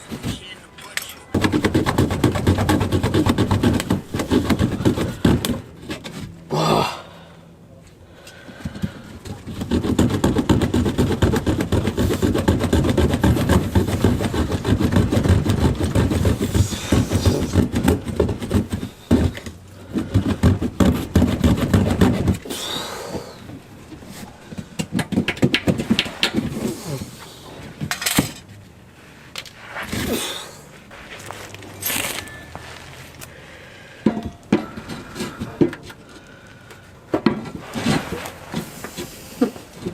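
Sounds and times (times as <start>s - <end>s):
scrapes and knocks: 1.4s - 6.4s, 8.5s - 30.2s, 37.1s - 39.9s.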